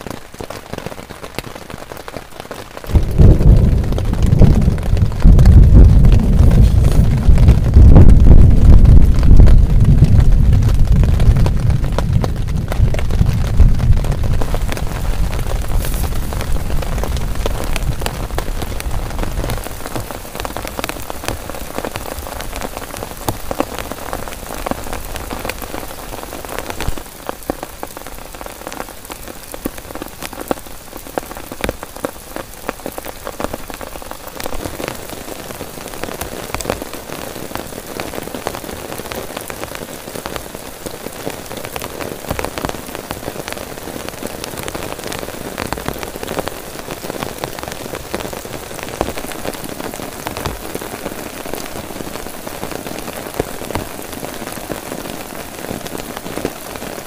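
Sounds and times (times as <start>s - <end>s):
heavy rain on a tent: 0.0s - 57.0s
low rumble: 2.9s - 19.5s.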